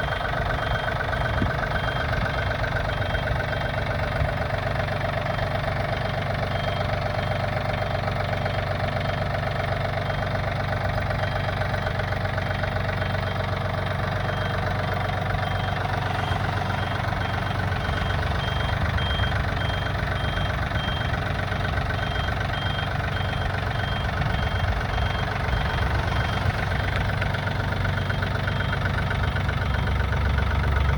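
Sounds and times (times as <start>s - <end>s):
diesel tractor engine idling: 0.0s - 30.9s.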